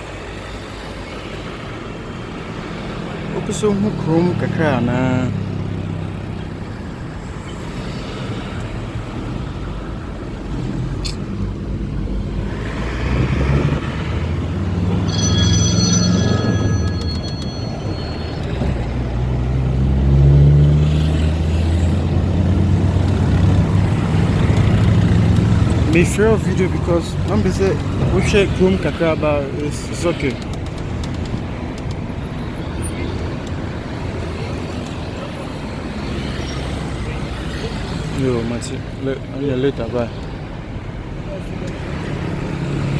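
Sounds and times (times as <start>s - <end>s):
car engines running: 0.0s - 42.9s
vehicles passing: 0.0s - 42.9s
high steady ringing tone: 15.0s - 19.3s.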